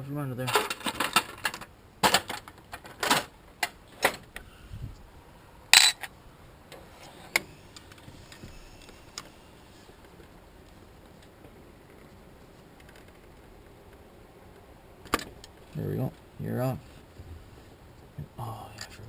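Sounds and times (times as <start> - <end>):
clinks of hand tools on metal: 5.8 - 6.1
sharp metal clank: 5.8 - 6.1.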